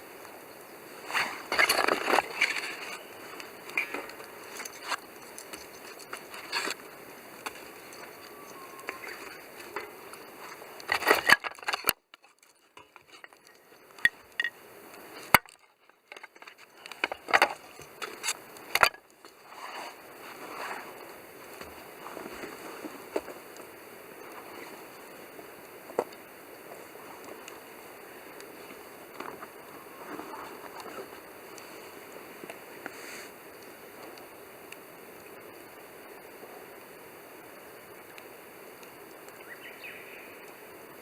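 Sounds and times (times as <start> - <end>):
campfire crackling: 0.0 - 41.0.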